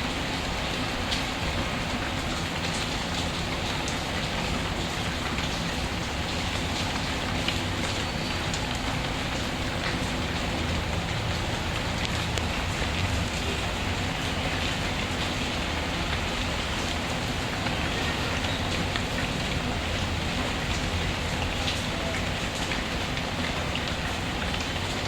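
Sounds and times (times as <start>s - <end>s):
steady rainfall hiss: 0.0s - 25.0s.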